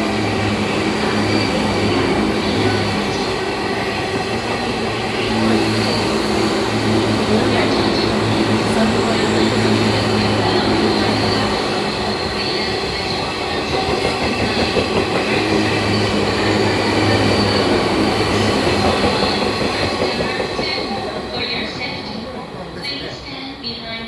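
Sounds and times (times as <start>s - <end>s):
train rail rumble: 0.0s - 24.0s.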